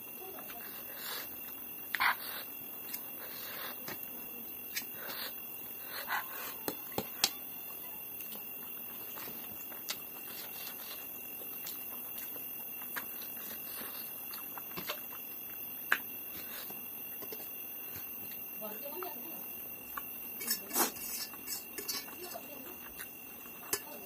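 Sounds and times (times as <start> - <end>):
chewing dumplings: 8.1 - 18.5, 19.7 - 24.0.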